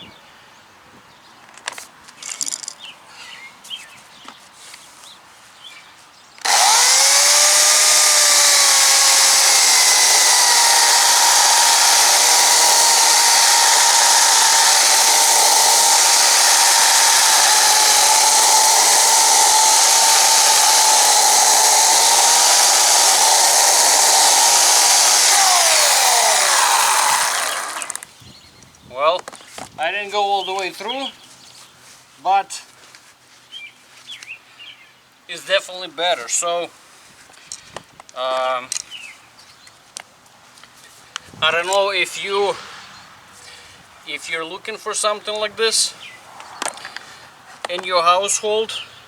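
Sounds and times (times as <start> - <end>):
electric chainsaw cutting wood: 6.4 - 28.1.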